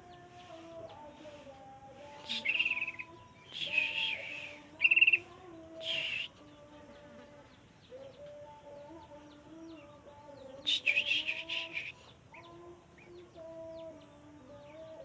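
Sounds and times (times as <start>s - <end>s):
bird chattering chirps: 2.2s - 5.2s.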